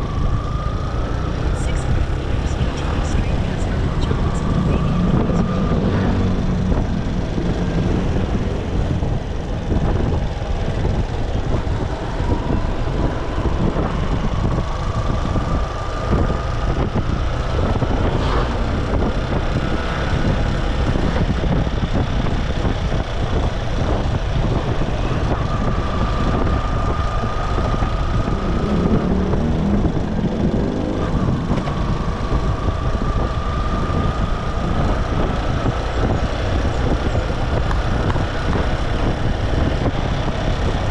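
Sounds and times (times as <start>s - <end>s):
motorcycle engine rumble: 0.0s - 40.9s
road noise: 0.0s - 40.9s.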